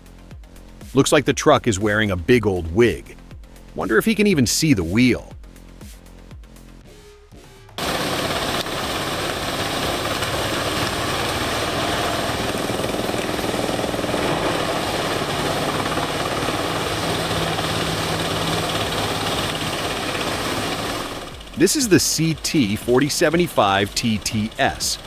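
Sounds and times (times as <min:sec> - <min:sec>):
wood chipper grinding: 0:07.8 - 0:21.6.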